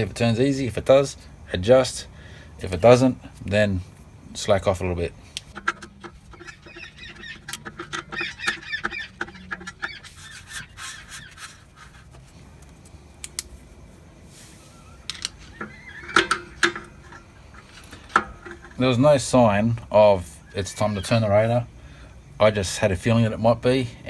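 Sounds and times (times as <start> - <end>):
poultry calling: 5.5 - 12.1, 14.6 - 18.6.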